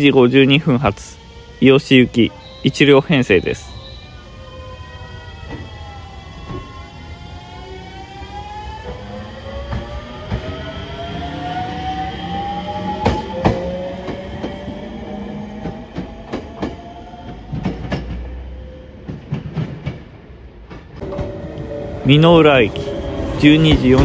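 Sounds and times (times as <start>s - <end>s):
electric train motors whining: 0.4s - 18.5s.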